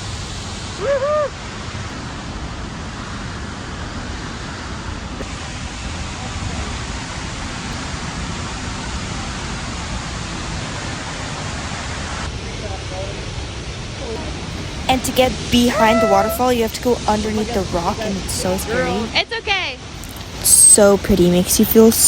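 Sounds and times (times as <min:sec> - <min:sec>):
waterfall roaring: 0:13.6 - 0:19.2, 0:19.9 - 0:22.0.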